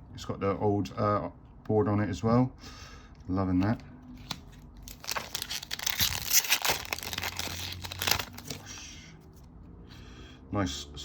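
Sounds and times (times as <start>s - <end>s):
foil wrapper crinkling: 4.9s - 8.7s.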